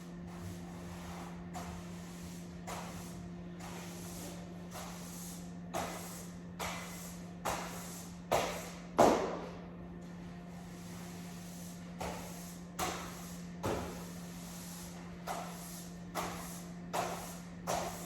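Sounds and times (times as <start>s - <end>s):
steady low hum: 0.0s - 18.0s
broom sweeping hard floor: 0.3s - 8.8s, 10.6s - 18.0s.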